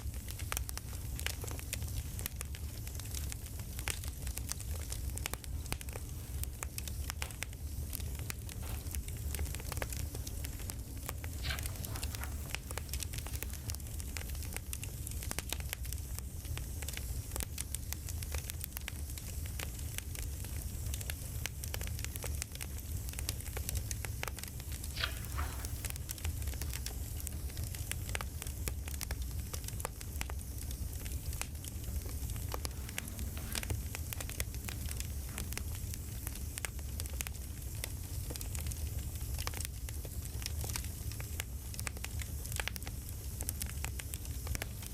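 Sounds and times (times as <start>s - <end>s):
low steady rumble: 0.0s - 44.9s
wood popping and snapping: 0.2s - 14.8s, 24.6s - 28.2s, 31.0s - 36.8s.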